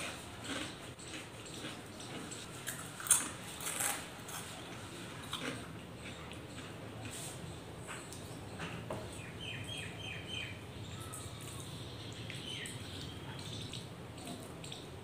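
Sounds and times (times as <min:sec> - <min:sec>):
crunchy snacks being chewed: 0:00.0 - 0:08.4
bird chirping: 0:07.5 - 0:15.0.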